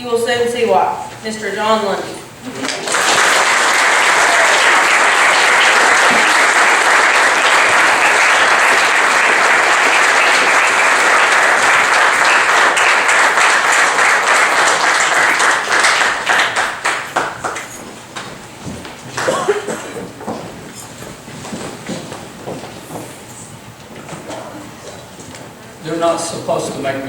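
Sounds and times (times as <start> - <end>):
congregation applauding: 2.5 - 20.3.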